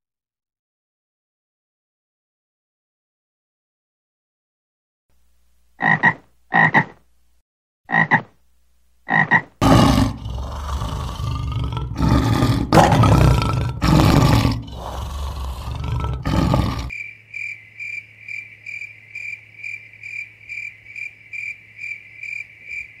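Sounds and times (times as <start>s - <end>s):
frog croaks: 5.8s - 7.0s, 7.9s - 8.4s, 9.1s - 23.0s
large animal roaring: 9.6s - 16.9s.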